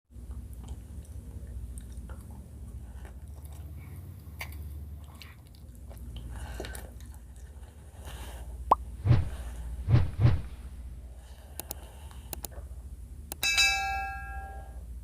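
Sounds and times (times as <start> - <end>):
chewing and mouth sounds: 0.2 - 8.1
low hum: 8.6 - 15.0.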